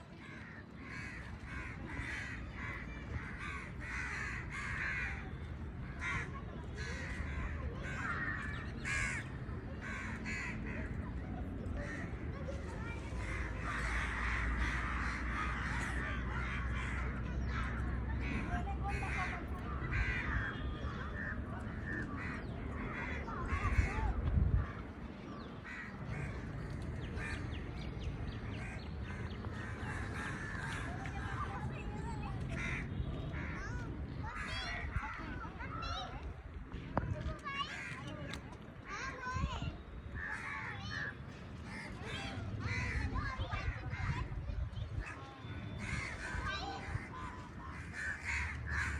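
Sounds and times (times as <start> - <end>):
birds harsh calls: 0.2 - 10.8, 13.2 - 31.8, 40.2 - 48.9.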